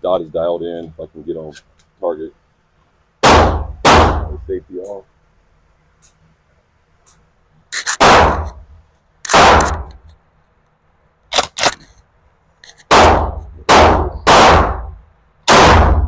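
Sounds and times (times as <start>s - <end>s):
shotgun shots ringing: 3.2s - 4.4s, 7.9s - 8.6s, 9.3s - 9.9s, 12.9s - 16.0s.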